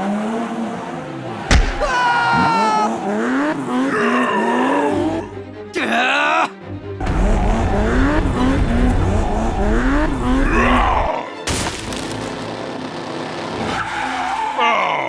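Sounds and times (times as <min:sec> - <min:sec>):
sharp hit: 0:01.5 - 0:02.3.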